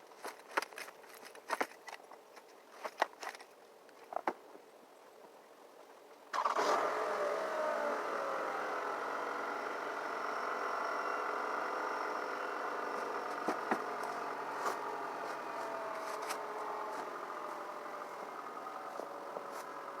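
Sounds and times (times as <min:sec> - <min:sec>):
car engine starting and idling: 0:06.3 - 0:20.0.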